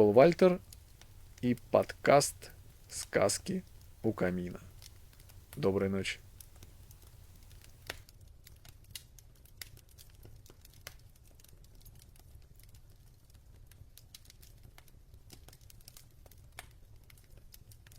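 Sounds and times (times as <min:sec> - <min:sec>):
low steady hum: 0:00.0 - 0:07.8
wood fire crackling and popping: 0:00.0 - 0:17.9.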